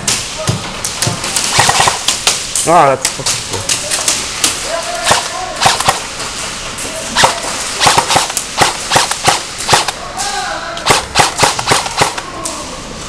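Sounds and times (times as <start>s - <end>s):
airsoft gun shots: 1.4s - 2.2s, 5.0s - 6.1s, 7.2s - 10.0s, 10.8s - 12.2s.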